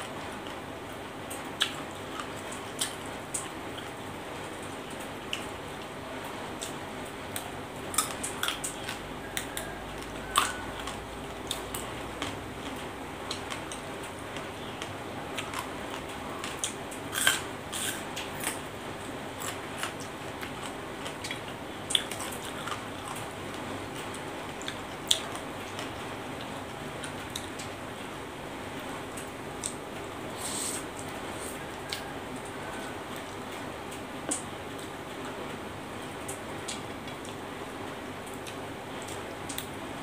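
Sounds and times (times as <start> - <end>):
chewing crunchy vegetables: 1.3 - 27.8, 29.1 - 35.0
background hiss: 30.1 - 31.7.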